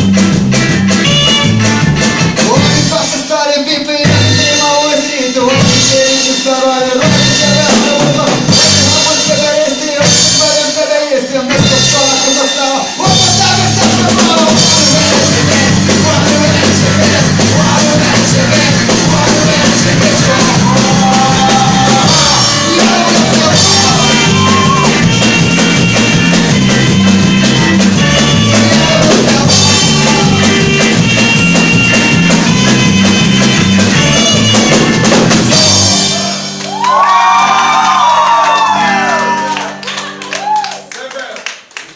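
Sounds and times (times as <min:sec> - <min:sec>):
bass line: 0:00.0 - 0:10.7, 0:11.5 - 0:40.6
drum kit: 0:00.0 - 0:40.8
person singing: 0:02.4 - 0:25.2, 0:27.9 - 0:31.8, 0:33.8 - 0:36.5.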